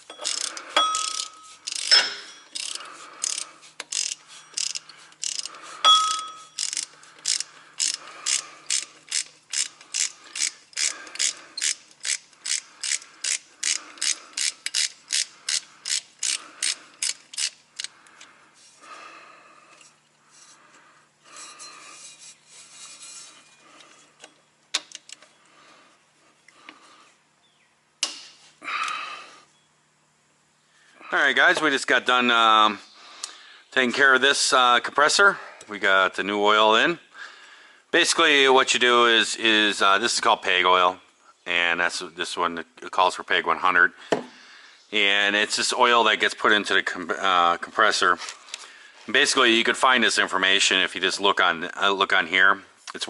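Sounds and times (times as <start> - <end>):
ratchet wrench clicking: 0.0 - 17.9
tool handling sounds: 0.0 - 18.8
ringing metal clink: 0.1 - 2.5, 5.8 - 6.6.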